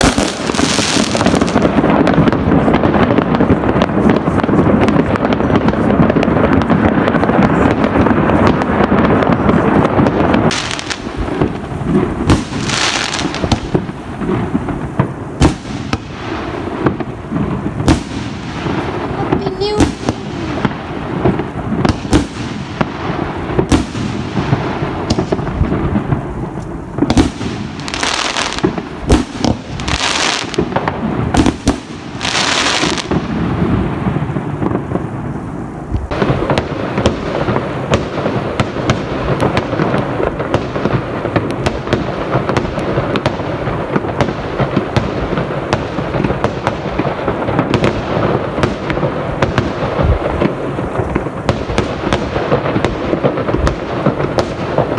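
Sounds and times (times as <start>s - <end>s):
close firecracker reports: 0.0s - 33.6s
distant firework bangs: 0.0s - 54.9s
firework crackling: 0.0s - 54.9s
hissing firework bursts: 0.0s - 54.9s.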